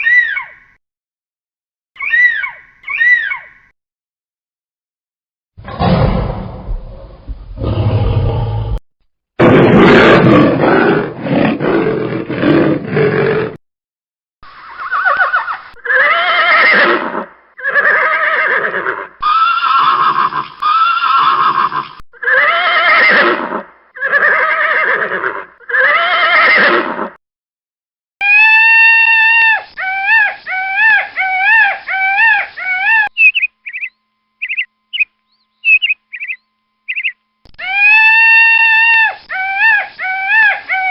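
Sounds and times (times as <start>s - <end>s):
wavering pitched animal call: 2.0s - 3.6s, 17.6s - 23.3s, 28.2s - 40.9s
rough roar-like animal call: 5.6s - 8.8s, 9.4s - 13.6s
rising and falling animal calls: 14.6s - 27.2s, 28.2s - 40.9s.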